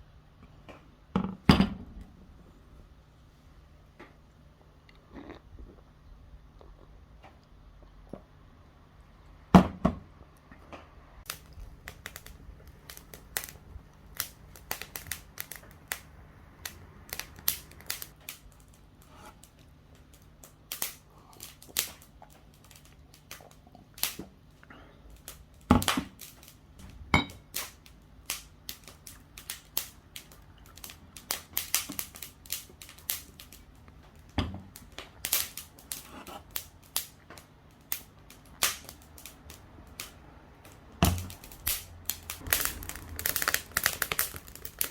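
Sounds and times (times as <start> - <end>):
wood fire crackling and popping: 11.2 - 44.9.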